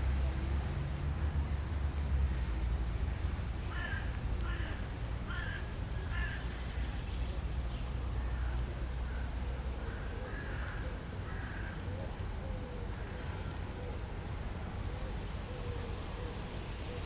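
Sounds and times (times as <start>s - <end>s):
low city rumble: 0.0s - 17.0s
crow cawing: 3.7s - 6.4s, 10.0s - 11.8s.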